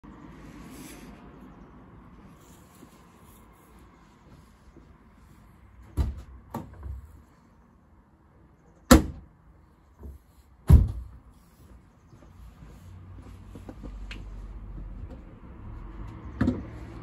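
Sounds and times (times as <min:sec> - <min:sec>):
doors being shut: 0:05.9 - 0:07.0.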